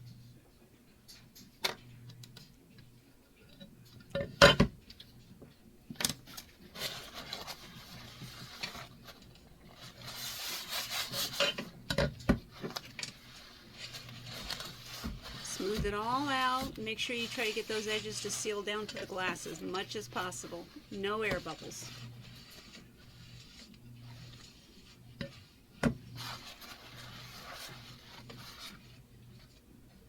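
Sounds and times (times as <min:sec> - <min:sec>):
scraping and rubbing vinyl: 0:06.6 - 0:30.0.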